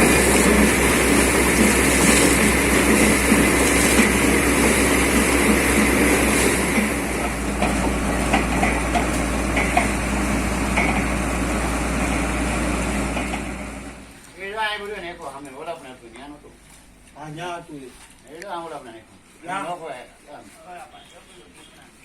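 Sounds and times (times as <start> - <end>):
drilling rig engine and compressor: 0.0 - 14.3.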